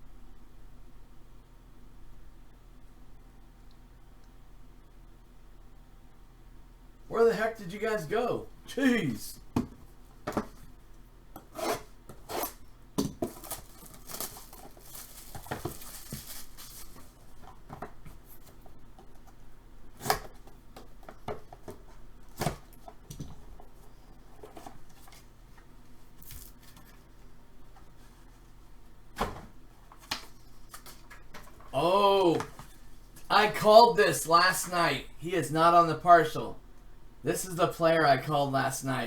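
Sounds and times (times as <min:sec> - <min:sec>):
plastic packaging rustling: 0:13.1 - 0:18.8.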